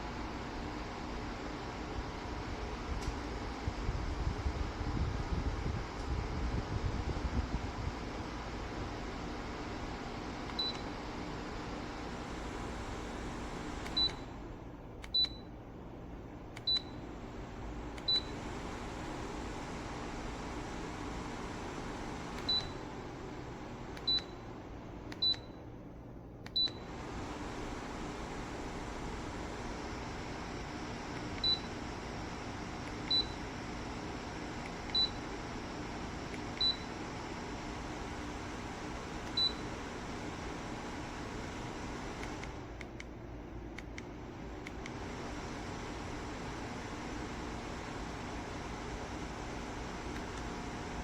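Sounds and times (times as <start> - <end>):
fan airflow hiss: 0.0 - 51.0
fan beeping: 9.0 - 15.6, 16.5 - 25.8, 26.4 - 43.1, 44.6 - 51.0
tower fan control beeps: 10.5 - 11.0, 13.8 - 14.4, 15.0 - 15.6, 16.6 - 17.1, 18.0 - 18.8, 22.2 - 22.8, 24.0 - 25.7, 26.4 - 27.0, 31.1 - 32.0, 32.8 - 33.5, 34.6 - 35.4, 36.3 - 37.1, 38.9 - 40.2.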